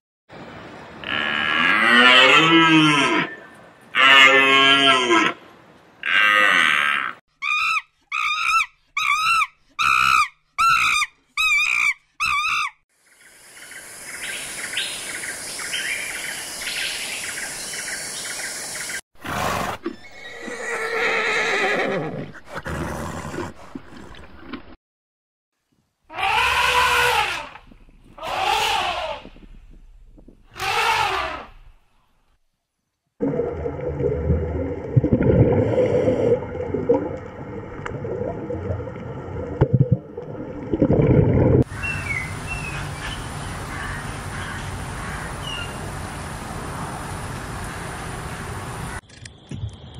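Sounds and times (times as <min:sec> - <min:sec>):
wavering high animal calls: 0:06.9 - 0:12.8, 0:26.1 - 0:27.6, 0:28.2 - 0:29.3
horse whinnying: 0:19.2 - 0:23.5, 0:28.2 - 0:29.3
elephant calls: 0:28.2 - 0:29.3
birds chirping: 0:41.7 - 0:45.9.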